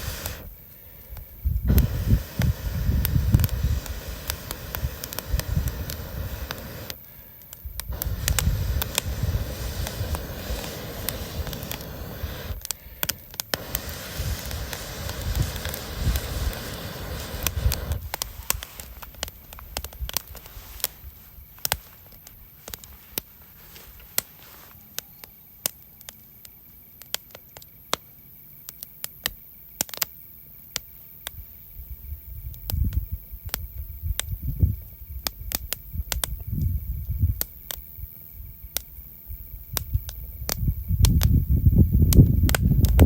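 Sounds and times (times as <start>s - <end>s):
campfire crackling and popping: 0.0s - 31.5s, 32.4s - 43.0s
faint steady high tone: 24.6s - 26.0s.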